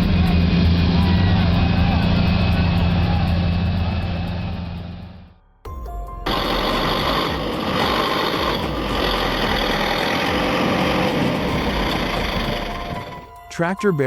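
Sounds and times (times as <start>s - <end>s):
tractor engine running hard: 0.0s - 5.3s, 6.2s - 13.4s.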